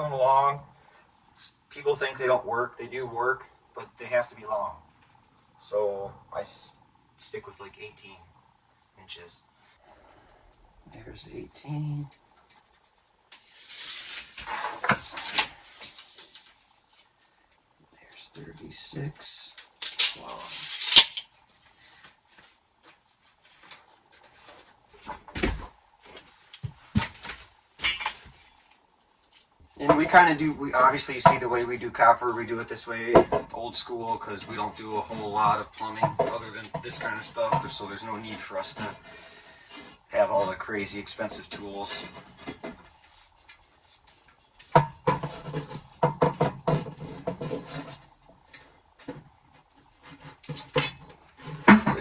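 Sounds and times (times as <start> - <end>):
knocks and clatters of tools: 14.3 - 16.0, 19.6 - 21.3, 23.6 - 28.5, 29.3 - 31.8, 33.0 - 40.0, 41.3 - 52.0
small metal objects clinking: 19.8 - 21.3.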